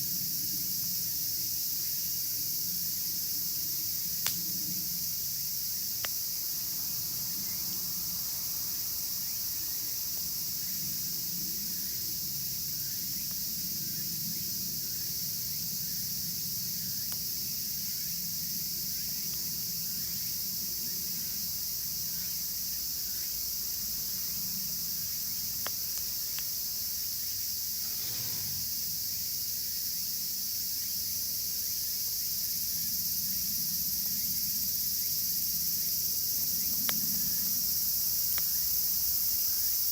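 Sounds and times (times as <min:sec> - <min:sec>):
cicadas chorus: 0:00.0 - 0:39.9
campfire popping and crackling: 0:25.0 - 0:26.9.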